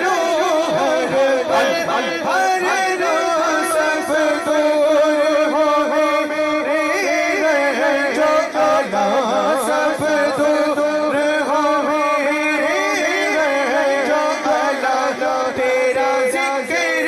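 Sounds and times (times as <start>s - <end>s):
melismatic singing voice: 0.0s - 17.0s.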